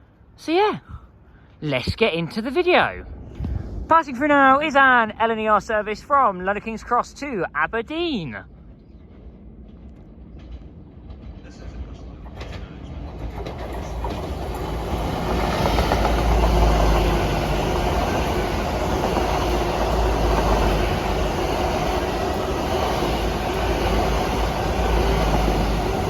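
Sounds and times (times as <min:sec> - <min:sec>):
train engine rumble: 0:08.4 - 0:26.0
wheels rushing on rail: 0:08.6 - 0:26.0.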